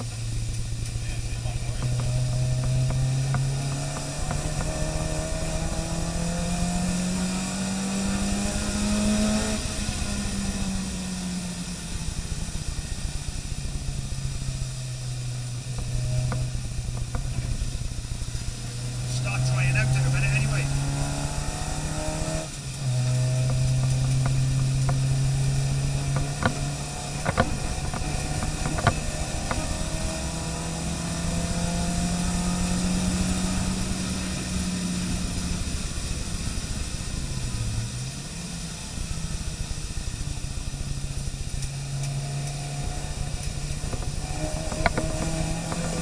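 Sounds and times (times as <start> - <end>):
car engine running: 0.0 - 46.0
sharp clicks: 26.0 - 29.7.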